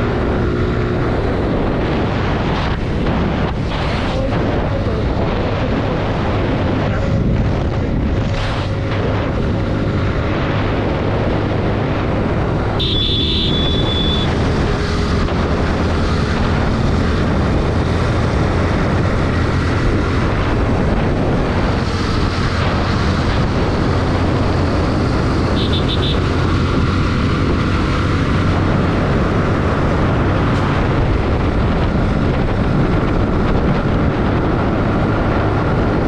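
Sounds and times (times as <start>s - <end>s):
wind and road noise: 0.0s - 36.0s
motorcycle engine running: 12.1s - 30.4s
short high-pitched beep: 12.8s - 14.3s.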